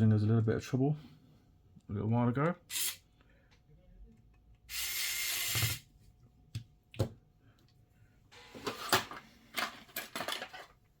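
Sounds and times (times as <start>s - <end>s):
electric screwdriver running: 4.7s - 5.8s.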